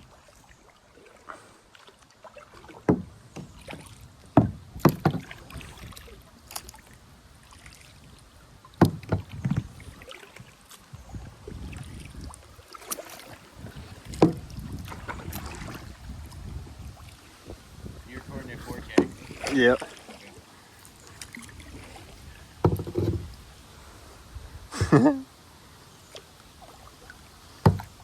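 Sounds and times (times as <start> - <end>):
paddle splashing water: 0.0 - 28.0
paddle knocking against kayak: 2.6 - 6.6, 8.7 - 10.4, 12.8 - 17.1, 17.8 - 20.4, 21.1 - 23.4, 27.6 - 28.0.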